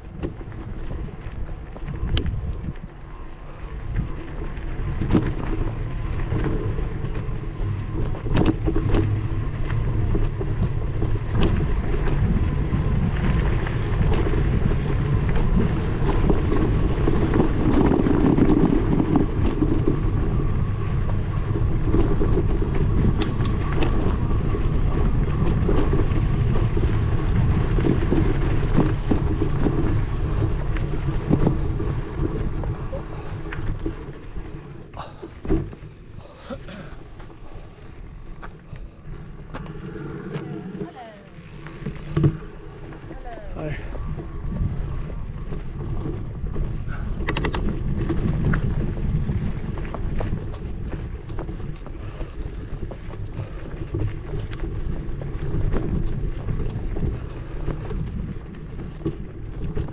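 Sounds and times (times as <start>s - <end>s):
low rumble: 0.0s - 59.9s
wind on microphone: 0.0s - 59.9s
sharp clicks and rattles: 45.9s - 48.8s.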